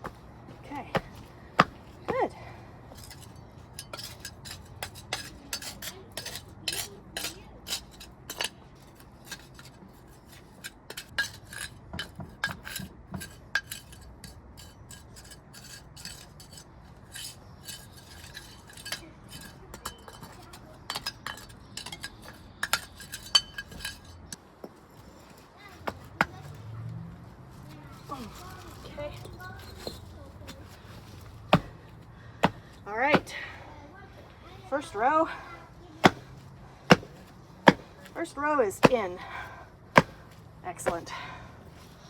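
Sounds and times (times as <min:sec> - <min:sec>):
concrete pavers clacking and scraping: 0:00.0 - 0:42.0.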